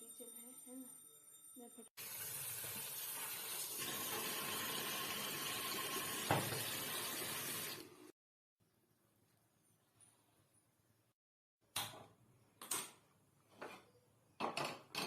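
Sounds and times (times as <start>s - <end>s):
water running from tap: 2.0s - 8.1s.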